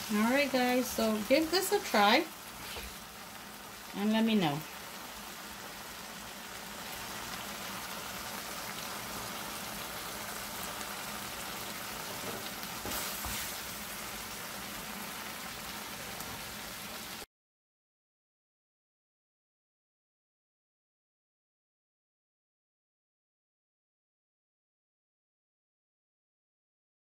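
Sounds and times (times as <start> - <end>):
pickle sizzling in oil: 0.0 - 17.3.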